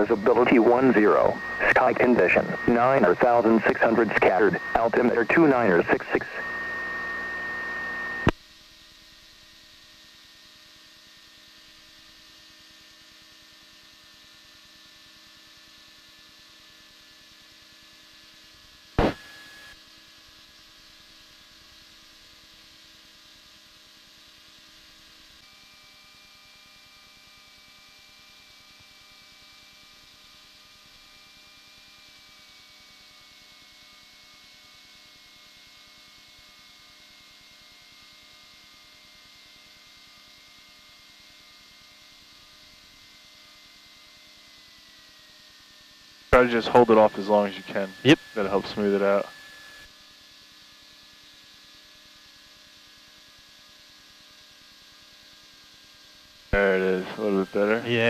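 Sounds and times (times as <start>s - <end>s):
radio click and static: 0.0s - 8.4s, 19.0s - 19.4s, 46.4s - 49.3s, 56.6s - 58.0s
radio hiss and hum: 0.0s - 8.4s, 19.0s - 19.8s, 46.4s - 49.8s, 56.6s - 58.0s.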